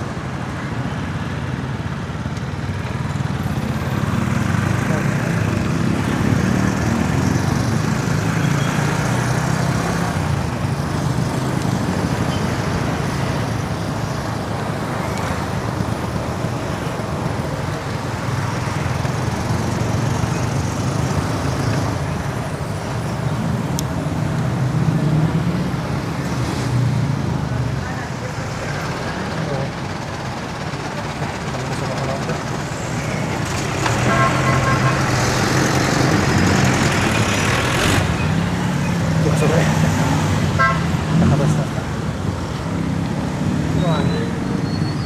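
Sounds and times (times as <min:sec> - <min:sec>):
road traffic noise: 0:00.0 - 0:45.0.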